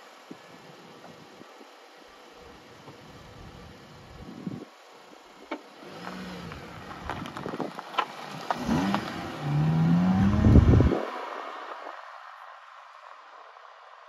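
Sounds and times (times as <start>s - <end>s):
car engine revving: 5.6s - 11.9s.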